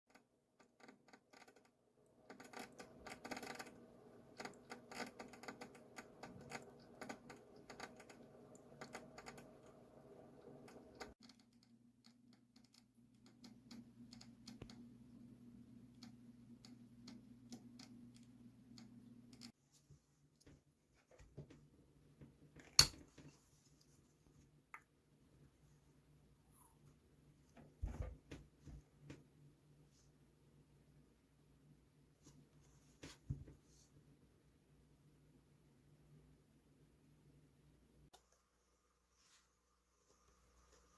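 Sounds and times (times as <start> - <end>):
aquarium filter motor hum: 0.8 - 11.4.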